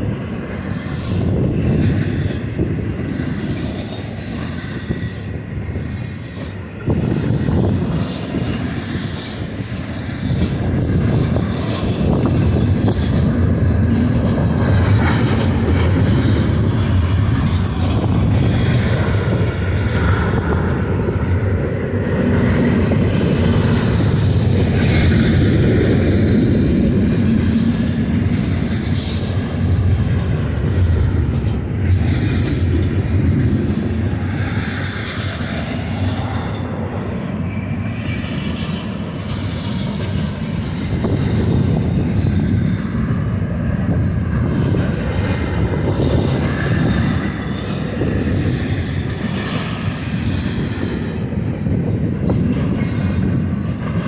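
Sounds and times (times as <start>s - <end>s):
freight train rumbling on rails: 0.0s - 54.0s
wheel and rail noises: 0.0s - 54.0s.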